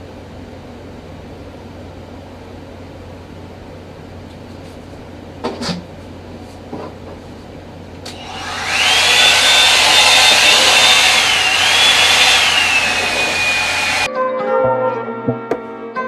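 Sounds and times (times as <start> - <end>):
hair dryer motor whine: 8.1 - 14.1.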